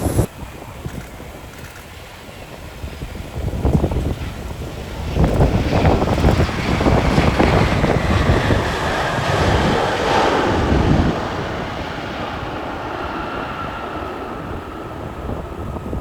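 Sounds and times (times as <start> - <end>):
faint high whine: 0.0 - 4.2
jet airliner engine rumble: 0.0 - 16.0
wind buffeting microphone: 0.0 - 16.0.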